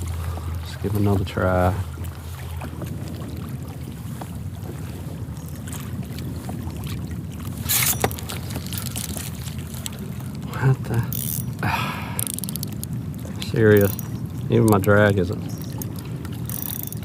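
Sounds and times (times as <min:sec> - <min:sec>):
wind and water rumble: 0:00.0 - 0:17.0
small clicks: 0:12.2 - 0:12.9.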